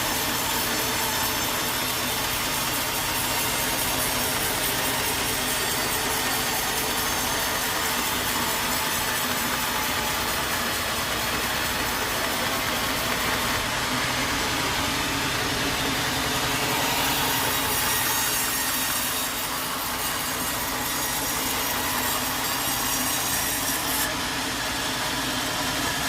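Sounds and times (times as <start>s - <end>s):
sawmill engine running: 0.0s - 26.0s.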